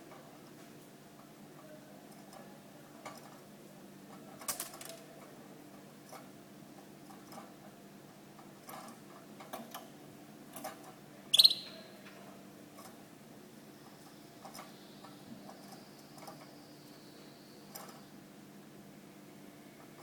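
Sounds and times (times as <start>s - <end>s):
canary chirp: 11.3s - 11.9s.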